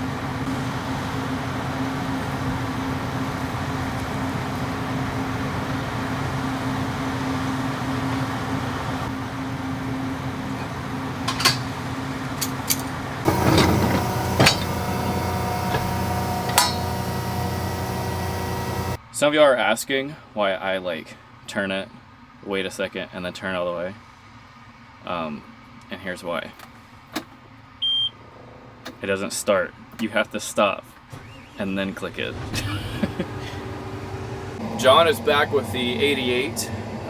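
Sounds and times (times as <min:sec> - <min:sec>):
tractor engine running: 0:10.3 - 0:19.0, 0:31.1 - 0:37.0.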